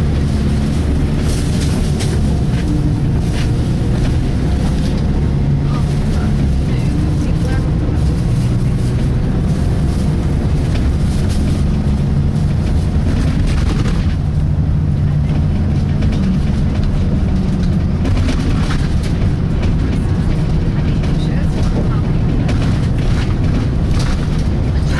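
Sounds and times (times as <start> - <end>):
bus diesel engine drone: 0.0 - 24.9
knocks and rattles: 10.5 - 24.9.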